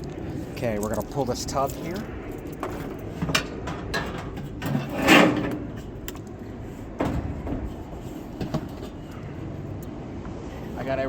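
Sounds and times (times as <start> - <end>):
washer tub scraping: 4.1 - 6.0.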